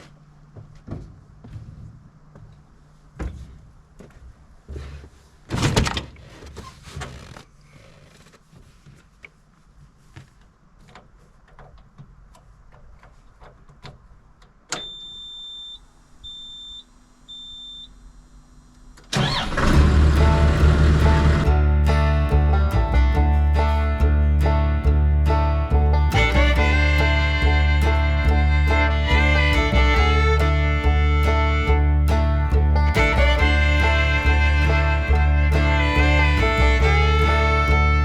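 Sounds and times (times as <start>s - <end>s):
engine cranking and starting: 19.0s - 22.0s.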